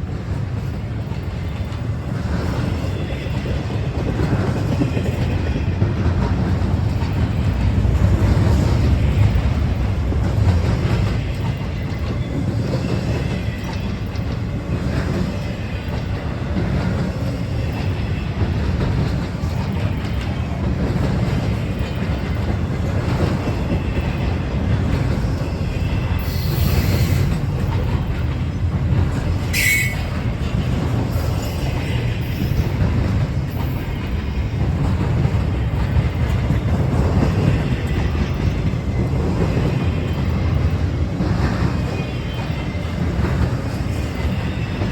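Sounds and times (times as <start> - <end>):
train wheels rumbling on rail: 0.0 - 44.9
high wheel squeal: 29.5 - 30.3.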